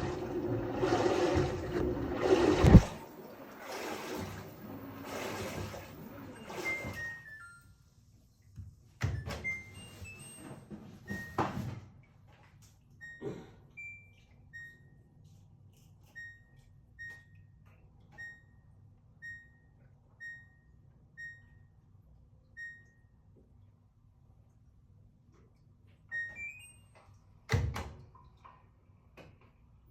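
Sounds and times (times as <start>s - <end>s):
washing machine beeps: 0.0s - 8.1s, 9.0s - 11.7s, 13.0s - 15.2s, 16.0s - 23.3s, 26.1s - 27.4s.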